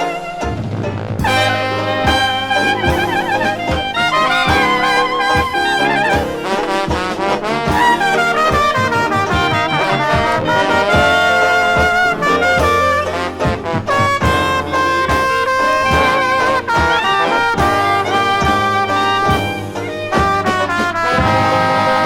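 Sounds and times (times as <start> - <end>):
slow jazz band: 0.0 - 22.0
trombone: 0.0 - 22.0
trumpet: 0.0 - 22.0.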